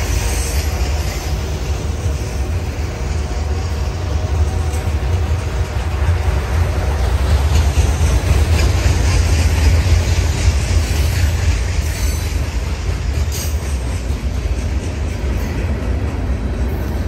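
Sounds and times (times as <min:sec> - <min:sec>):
steel wheels rumbling on rails: 0:00.0 - 0:17.0
faint high wheel squeals: 0:11.0 - 0:12.5.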